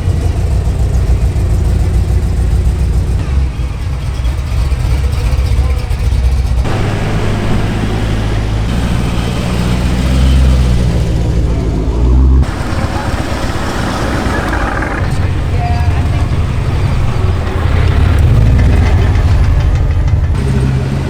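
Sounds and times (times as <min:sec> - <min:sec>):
car engine running: 0:00.0 - 0:21.0
deep engine drone: 0:00.0 - 0:21.0.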